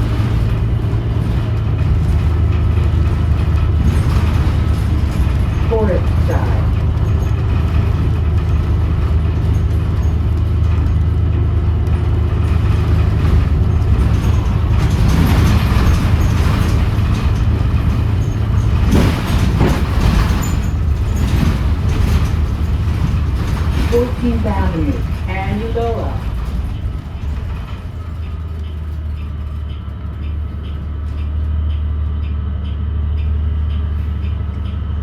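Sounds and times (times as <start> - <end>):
bus engine drone: 0.0 - 35.0
road and rattle noise: 0.0 - 35.0
knocks: 12.6 - 29.3.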